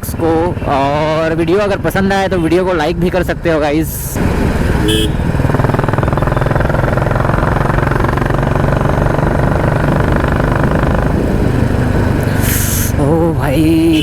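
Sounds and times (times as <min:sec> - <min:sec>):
motorcycle engine running: 0:04.1 - 0:14.0.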